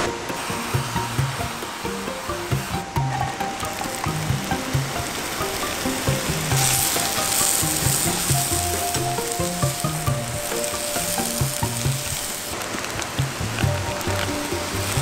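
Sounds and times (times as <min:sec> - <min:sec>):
background music: 0:00.0 - 0:15.0
food sizzling in a pan: 0:00.3 - 0:15.0.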